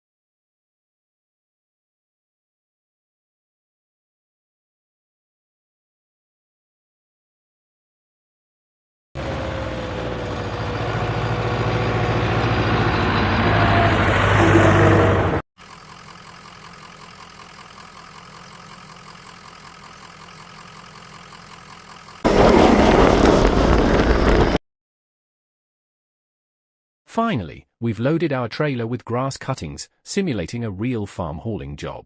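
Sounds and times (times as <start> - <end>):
engine-like machine running: 9.2 - 24.6.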